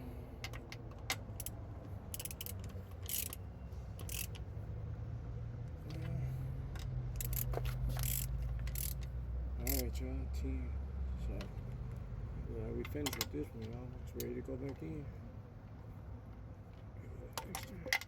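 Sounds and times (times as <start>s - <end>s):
hand ratchet clicking: 0.4s - 3.4s, 4.0s - 4.4s, 6.8s - 9.9s.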